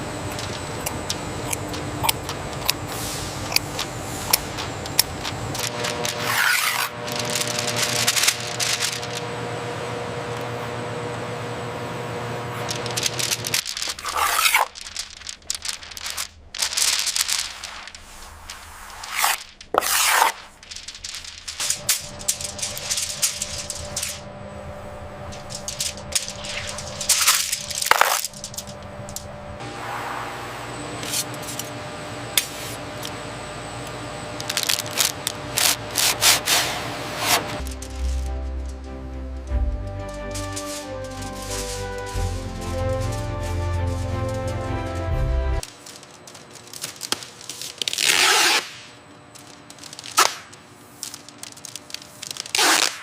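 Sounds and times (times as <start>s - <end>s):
hand scraping a surface: 0.4s - 9.2s, 12.5s - 24.0s, 40.2s - 45.7s
quiet background music: 37.6s - 45.6s.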